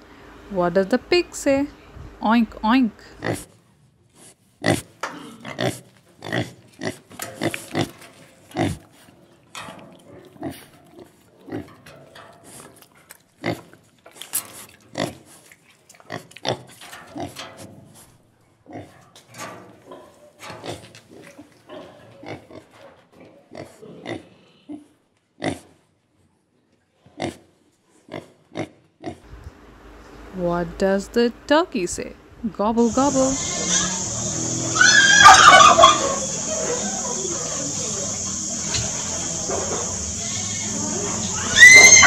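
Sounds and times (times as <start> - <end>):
pigs grunting: 4.6 - 9.3, 9.9 - 11.8, 13.4 - 13.9, 19.8 - 25.7, 32.8 - 42.0.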